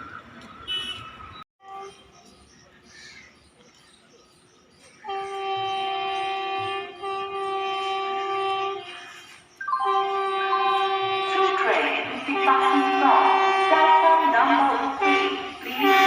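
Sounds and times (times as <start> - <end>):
faint train noise: 1.6 - 16.0
locomotive horn blast: 5.0 - 16.0.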